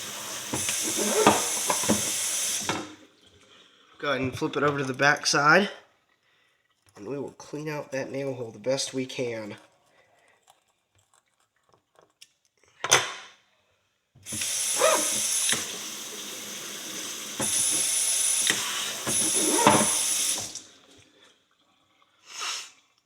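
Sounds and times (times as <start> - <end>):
running water rinsing horseshoe: 0.0 - 3.6, 14.3 - 21.1.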